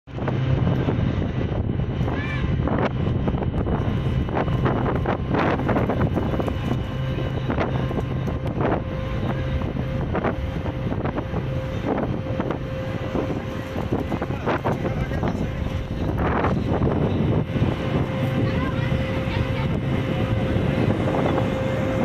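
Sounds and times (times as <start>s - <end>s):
ferry engine humming: 0.0s - 22.0s
wind gusting on microphone: 0.1s - 22.0s.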